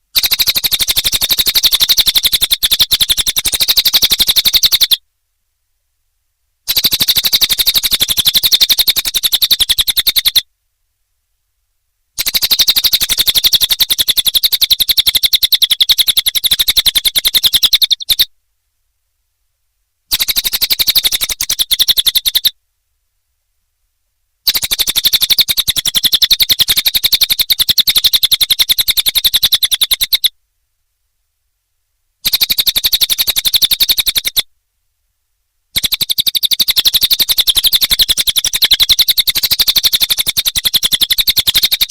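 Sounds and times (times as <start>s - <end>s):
bird trills: 0.2s - 5.0s, 6.7s - 10.4s, 12.2s - 18.3s, 20.1s - 22.5s, 24.5s - 30.3s, 32.2s - 34.4s, 35.8s - 41.9s.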